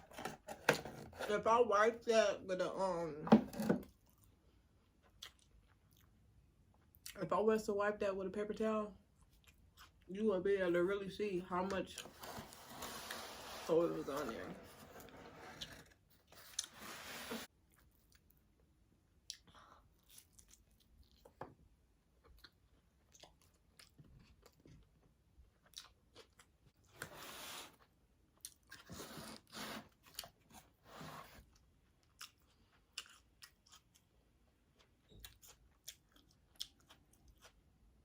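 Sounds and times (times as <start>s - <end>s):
person chewing food: 3.9s - 7.2s, 9.2s - 10.1s, 15.6s - 16.8s, 17.6s - 27.0s, 28.3s - 30.8s, 31.4s - 38.0s.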